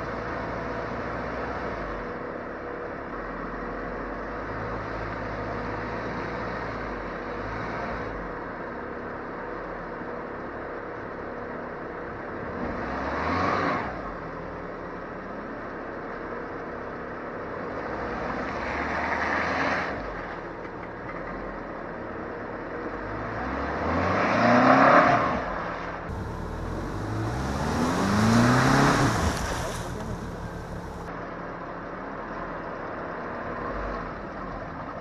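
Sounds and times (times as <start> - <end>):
car engine revving: 26.1 - 31.1.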